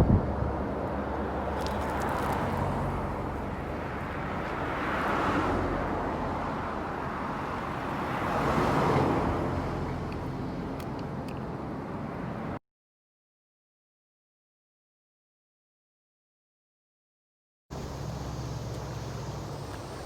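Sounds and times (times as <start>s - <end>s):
road traffic going by: 0.0s - 12.6s, 17.7s - 20.0s
vehicles passing close: 0.0s - 12.6s, 17.7s - 20.0s.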